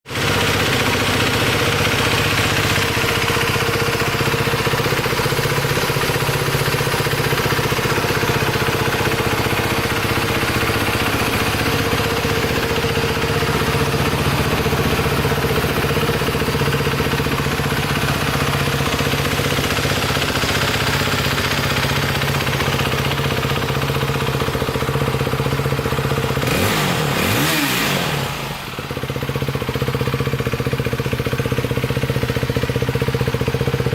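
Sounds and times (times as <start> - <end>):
motorcycle engine idling: 0.1 - 33.9.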